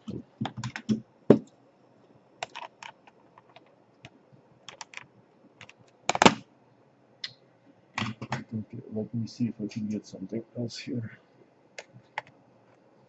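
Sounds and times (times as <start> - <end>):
plastic parts clicking: 2.4 - 3.7, 4.7 - 6.4.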